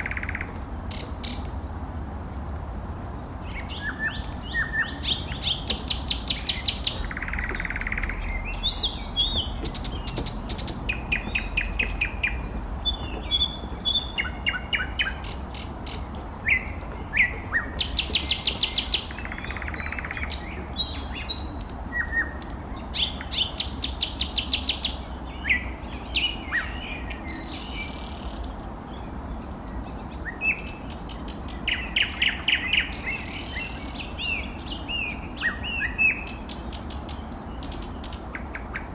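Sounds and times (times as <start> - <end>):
steady low rumble: 0.0 - 23.3
nightingale singing: 0.0 - 38.9.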